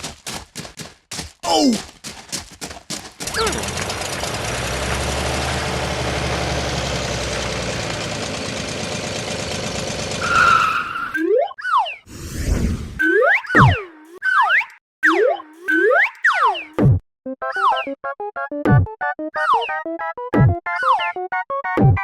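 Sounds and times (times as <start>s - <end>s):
engine-like rumble with hiss: 3.3s - 10.1s.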